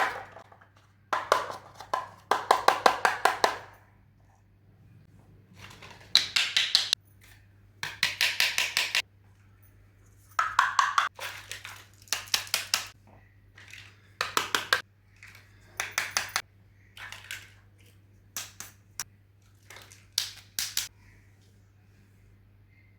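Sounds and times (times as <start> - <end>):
plastic toy pieces clicking together: 10.4 - 13.0, 13.6 - 16.4, 19.7 - 20.9
faint low hum: 20.9 - 22.9.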